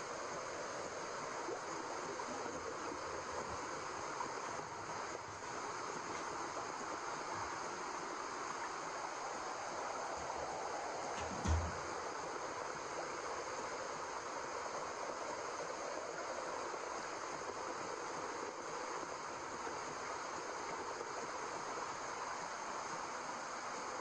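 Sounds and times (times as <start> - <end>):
steady white noise hiss: 0.0 - 24.0
short low thump: 11.2 - 11.9.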